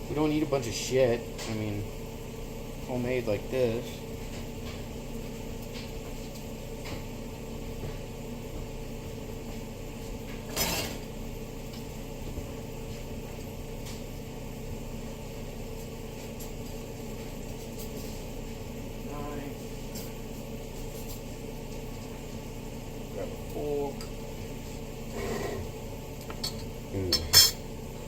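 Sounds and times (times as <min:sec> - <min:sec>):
steady background hum: 0:00.0 - 0:28.0
dishes clattering: 0:26.3 - 0:27.6.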